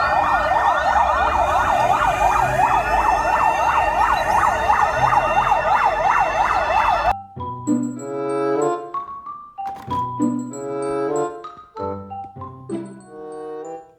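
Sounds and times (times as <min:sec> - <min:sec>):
emergency sirens wailing: 0:00.0 - 0:07.2.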